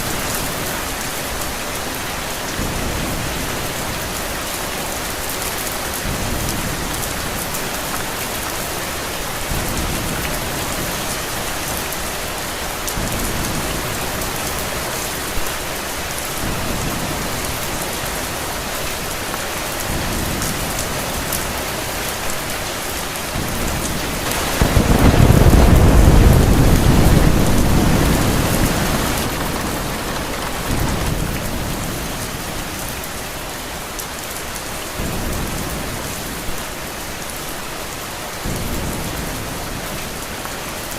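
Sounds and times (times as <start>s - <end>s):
heavy rain: 0.0s - 40.9s
thunder rumbling: 23.3s - 33.2s.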